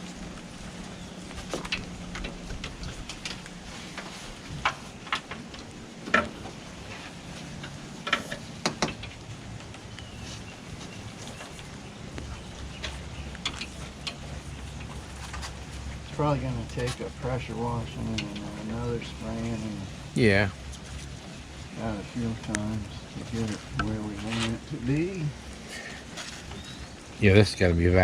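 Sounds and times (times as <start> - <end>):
pressure washer humming: 0.0 - 27.9.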